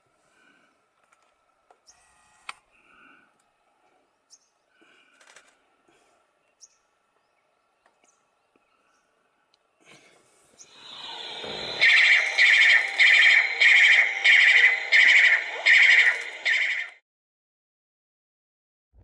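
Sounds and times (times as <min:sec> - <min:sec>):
faint bird calls: 0:10.6 - 0:17.0.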